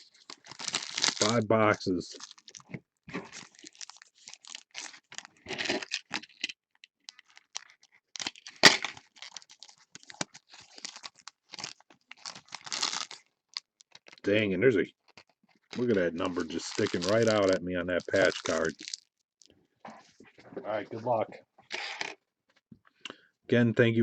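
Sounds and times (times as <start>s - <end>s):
cards rustling: 0.0s - 1.4s, 7.1s - 14.2s, 15.0s - 19.0s
wrappers crinkling and tearing: 0.0s - 1.4s, 2.1s - 14.3s, 15.0s - 19.5s.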